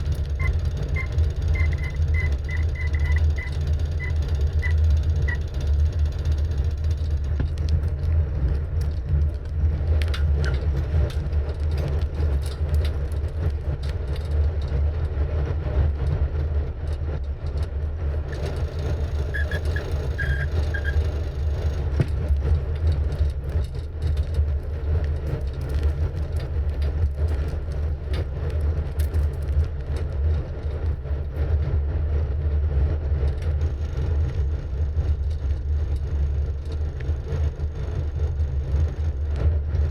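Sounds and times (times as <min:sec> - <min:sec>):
faint clicks: 0:00.0 - 0:14.3
bicycle tyres rolling on road: 0:00.0 - 0:39.9.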